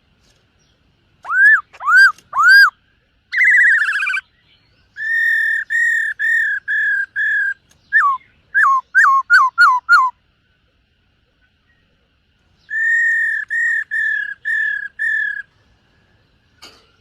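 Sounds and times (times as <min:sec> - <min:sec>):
bird singing clear whistles: 0:01.2 - 0:10.2, 0:12.6 - 0:15.5.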